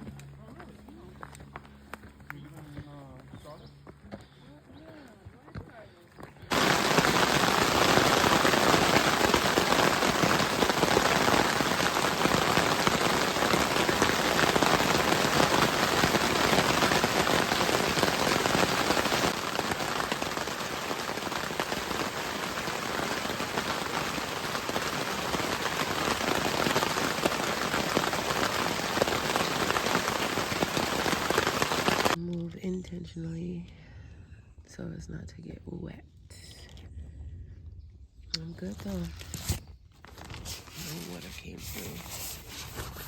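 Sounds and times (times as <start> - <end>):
heavy rain falling: 6.5 - 32.2.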